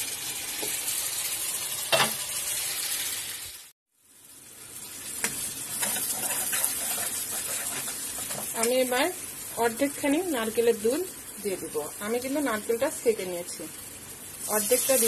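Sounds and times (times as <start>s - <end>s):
masala sizzling in oil: 0.0s - 15.0s
metal spatula scraping and stirring: 5.2s - 8.6s.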